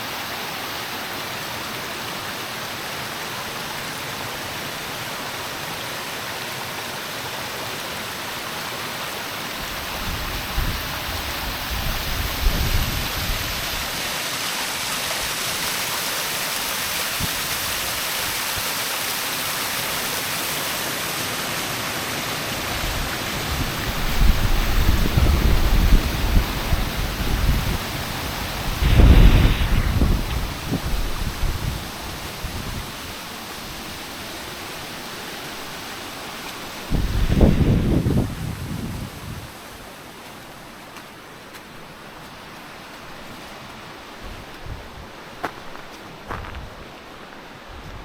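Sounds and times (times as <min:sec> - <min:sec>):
waterfall rushing: 0:00.0 - 0:44.2
low rumbling gusts: 0:22.7 - 0:33.0, 0:36.8 - 0:39.5.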